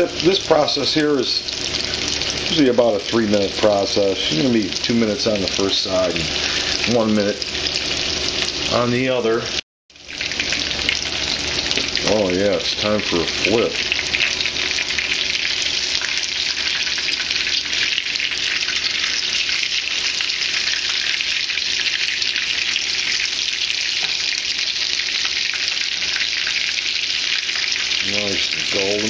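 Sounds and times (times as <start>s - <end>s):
fish fillets sizzling in oil: 0.0s - 9.1s, 9.9s - 29.0s
fork turning fillets: 10.4s - 28.9s.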